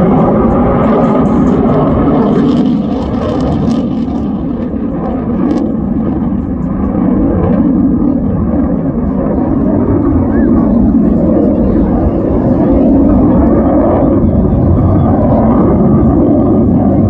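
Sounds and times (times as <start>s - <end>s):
jet engine rumble: 0.0s - 17.0s.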